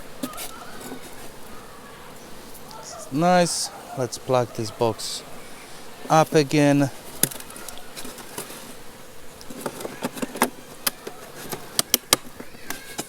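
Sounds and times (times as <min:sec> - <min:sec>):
honeybees buzzing: 0:00.0 - 0:13.0
hive box clicks and taps: 0:09.4 - 0:13.0.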